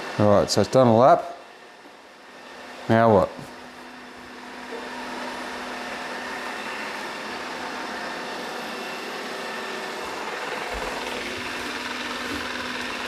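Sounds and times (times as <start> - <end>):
robot vacuum whirring: 4.5 - 13.0.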